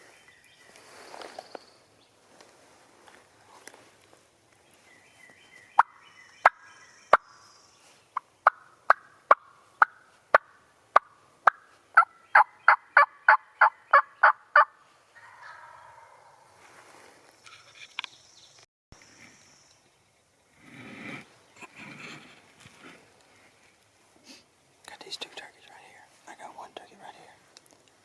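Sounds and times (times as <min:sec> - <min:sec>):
wild turkey clucking: 0:05.8 - 0:07.4, 0:08.2 - 0:16.4.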